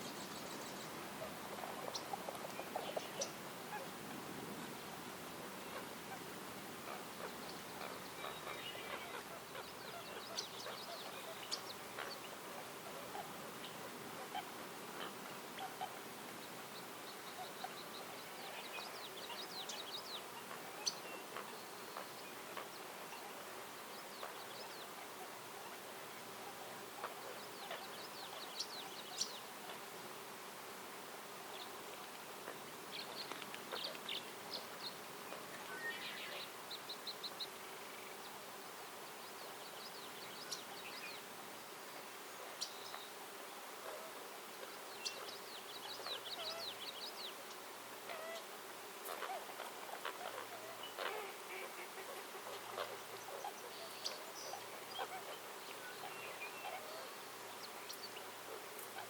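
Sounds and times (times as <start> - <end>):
songbirds trilling: 6.9 - 29.9.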